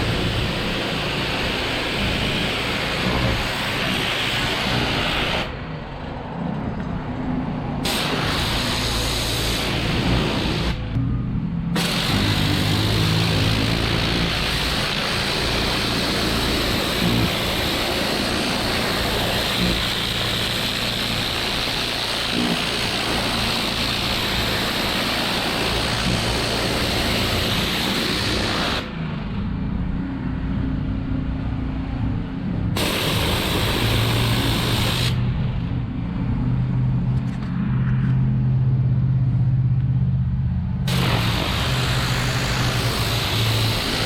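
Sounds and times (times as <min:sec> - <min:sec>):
pressure washer spray hissing: 0:00.0 - 0:05.6, 0:07.8 - 0:10.9, 0:11.8 - 0:29.0, 0:32.8 - 0:35.3, 0:40.9 - 0:44.0
pressure washer engine hum: 0:00.0 - 0:37.2, 0:38.2 - 0:44.0.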